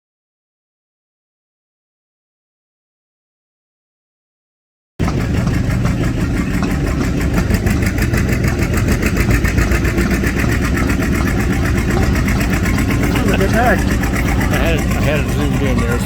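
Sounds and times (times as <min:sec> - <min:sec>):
mechanical rumble: 0:05.0 - 0:16.0
steam engine exhaust chuffs: 0:05.0 - 0:16.0.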